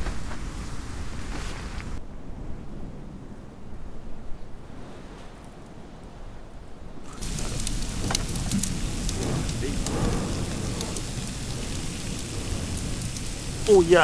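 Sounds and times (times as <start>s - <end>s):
low wind rumble: 0.0s - 14.0s
light rain pattering: 4.9s - 14.0s.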